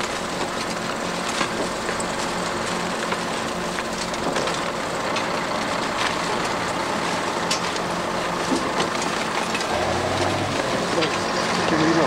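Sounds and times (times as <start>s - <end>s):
heavy vehicle engine running: 0.0s - 12.0s.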